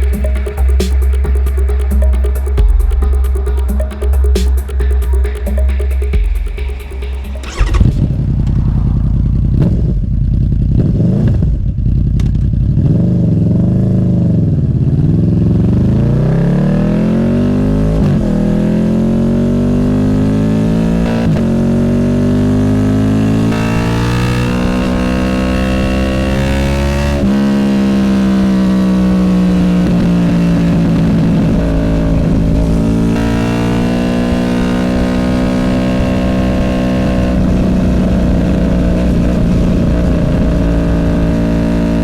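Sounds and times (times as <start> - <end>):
intro music: 0.0 - 10.8
motorcycle engine revving: 0.0 - 42.0.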